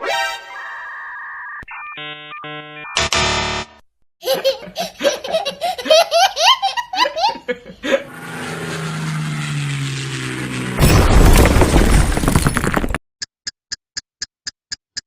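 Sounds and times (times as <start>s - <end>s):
hearty laughter: 4.2s - 8.1s
buzzy tone: 8.1s - 10.8s.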